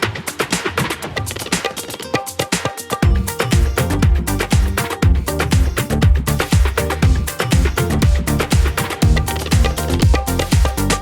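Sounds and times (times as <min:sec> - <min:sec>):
dance music: 0:00.0 - 0:11.0
kick drum: 0:03.0 - 0:10.9
bass line: 0:03.0 - 0:11.0.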